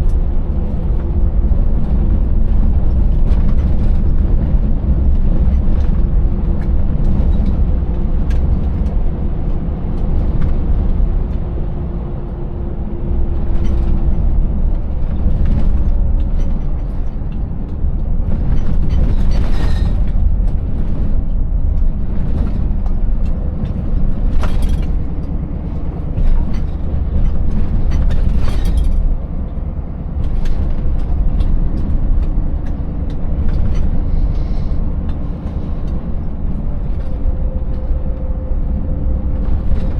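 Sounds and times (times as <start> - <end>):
truck engine and road rumble: 0.0 - 39.9
knocks and rattles: 21.7 - 37.2.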